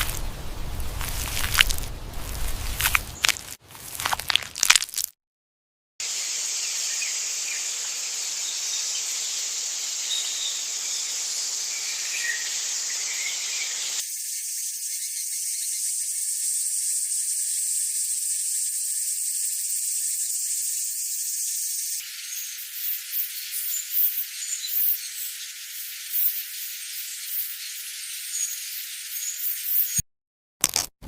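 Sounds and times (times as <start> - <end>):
insects shrilling: 0.0 - 4.8, 6.2 - 30.0
bird-like chirps: 6.6 - 30.0.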